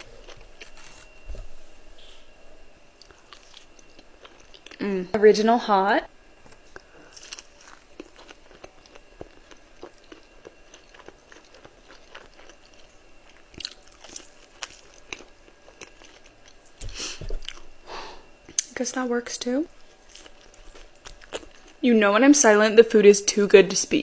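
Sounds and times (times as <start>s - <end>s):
chewing crispy fried chicken: 3.0s - 4.8s, 6.4s - 17.7s, 19.7s - 21.8s.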